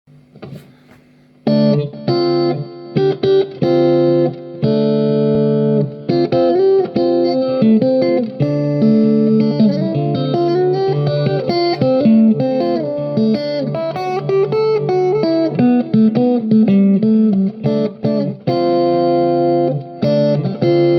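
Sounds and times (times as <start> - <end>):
plucked guitar melody: 1.4 - 20.9.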